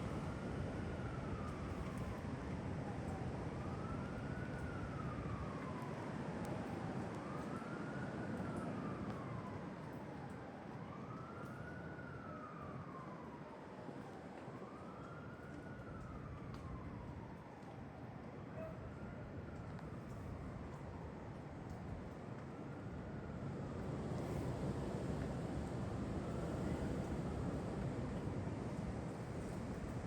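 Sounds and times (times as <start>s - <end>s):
siren wailing: 0.1s - 21.2s.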